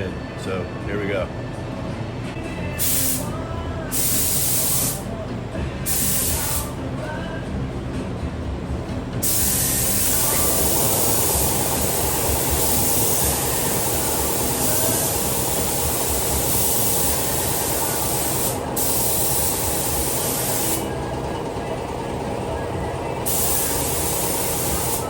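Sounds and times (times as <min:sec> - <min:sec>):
steady hum: 0:00.0 - 0:25.0
paint spray gun hissing: 0:02.8 - 0:05.1, 0:05.9 - 0:06.8, 0:09.2 - 0:21.0, 0:23.2 - 0:25.0.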